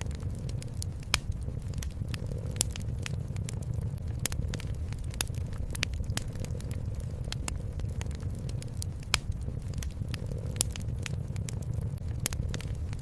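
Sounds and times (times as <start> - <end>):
low steady rumble: 0.0 - 13.0
wood fire crackling in fireplace: 0.0 - 13.0.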